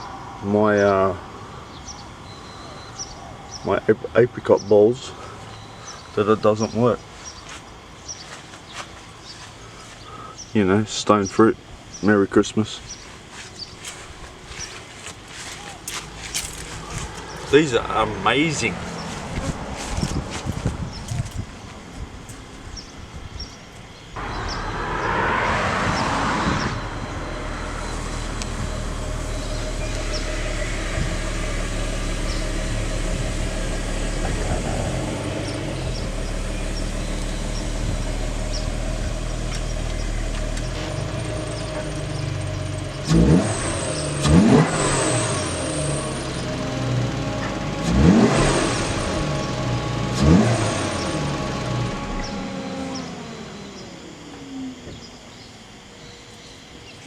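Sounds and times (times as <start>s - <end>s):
car engine revving: 12.9s - 55.1s.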